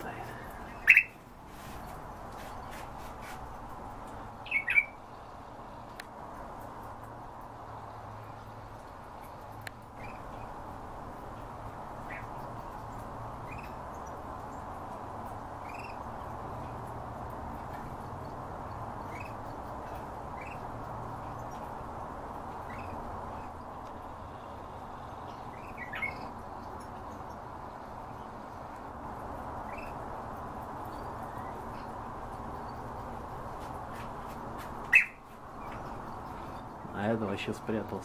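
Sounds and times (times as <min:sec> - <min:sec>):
low background noise: 0:00.0 - 0:38.0
pet bird chirping: 0:00.2 - 0:01.2, 0:04.4 - 0:05.1, 0:12.0 - 0:14.2, 0:19.0 - 0:21.7, 0:22.6 - 0:23.5, 0:25.1 - 0:27.2, 0:34.9 - 0:37.0.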